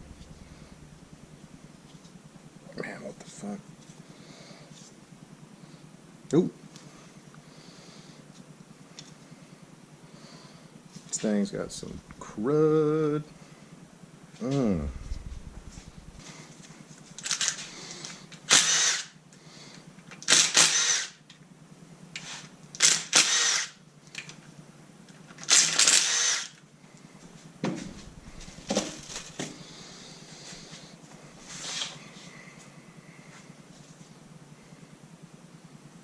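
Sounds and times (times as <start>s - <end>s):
power tool whining: 17.4s - 19.2s, 20.2s - 21.2s, 22.8s - 23.8s, 25.4s - 26.6s.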